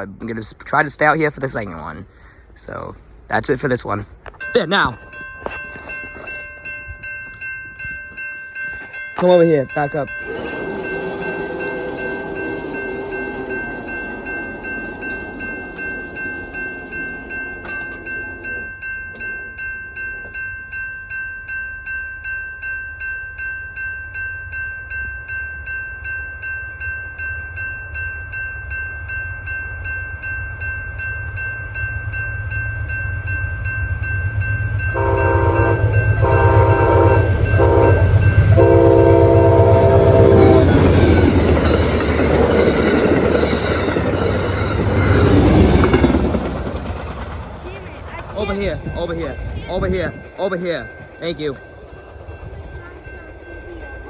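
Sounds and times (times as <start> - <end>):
train rumble: 0.0 - 20.6, 28.6 - 54.0
crossing warning bell ringing: 0.0 - 54.0
train horn blasts: 34.9 - 41.3.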